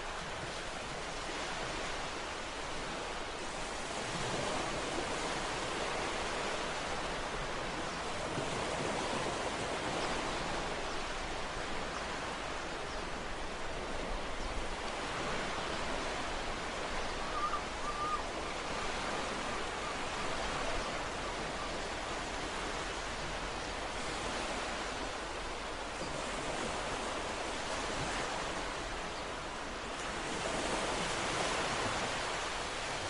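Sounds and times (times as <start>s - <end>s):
ocean waves breaking: 0.0s - 33.0s.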